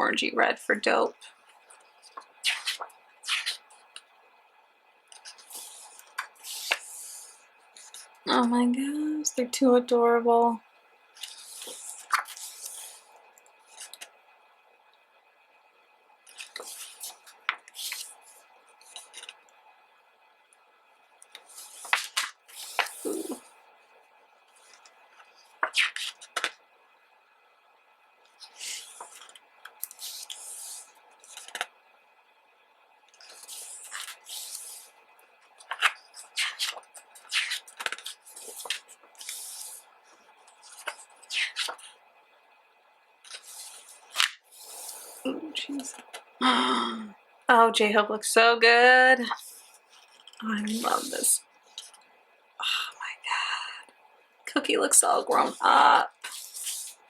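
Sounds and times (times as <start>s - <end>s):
book pages turning: 1.2s - 4.1s, 5.1s - 8.2s, 11.2s - 14.1s, 16.3s - 19.4s, 21.3s - 23.5s, 24.5s - 26.6s, 28.3s - 31.7s, 33.1s - 42.0s, 43.2s - 46.2s, 49.3s - 52.0s, 55.3s - 57.0s
pages snapping over: 18.9s - 19.4s, 21.4s - 23.4s, 25.6s - 26.6s, 28.4s - 31.7s, 35.6s - 39.8s, 40.6s - 41.9s, 43.2s - 44.4s
sharp paper crackle: 35.6s - 39.8s.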